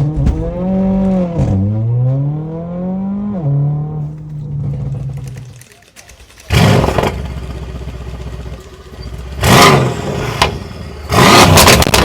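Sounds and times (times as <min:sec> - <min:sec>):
car engine idling and revving: 0:00.0 - 0:12.0
exhaust pops: 0:04.0 - 0:12.0.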